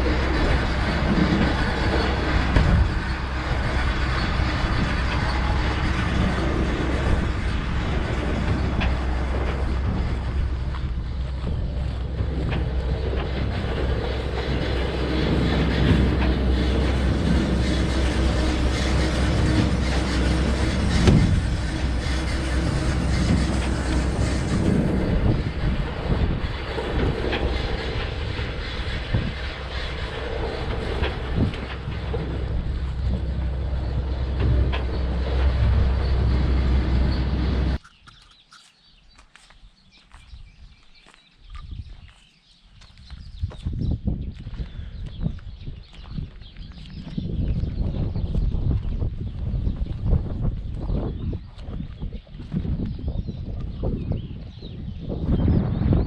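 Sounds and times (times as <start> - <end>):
rattling and knocking: 0.0 - 37.8
tractor engine rumble: 0.0 - 38.1.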